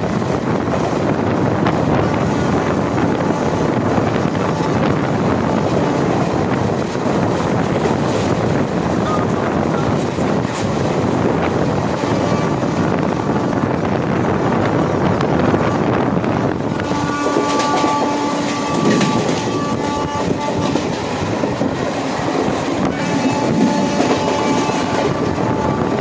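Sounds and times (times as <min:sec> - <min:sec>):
train rumbling on rails: 0:00.0 - 0:26.0
train horn: 0:02.5 - 0:06.4, 0:11.9 - 0:12.9, 0:16.7 - 0:21.9, 0:22.8 - 0:26.0.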